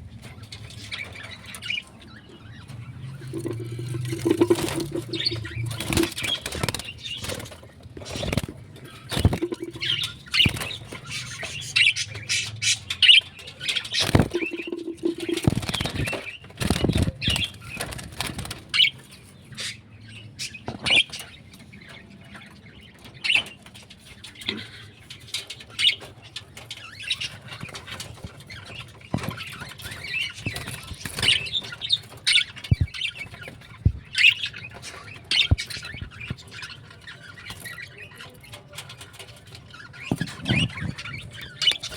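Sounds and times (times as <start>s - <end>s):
birds chirping and squawking: 0.0s - 41.9s
sharp clicks and knocks: 38.8s - 41.9s.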